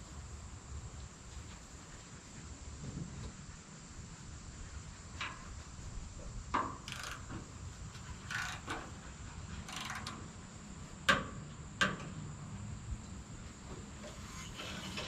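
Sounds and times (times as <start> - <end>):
short scraping sounds: 14.0 - 15.0.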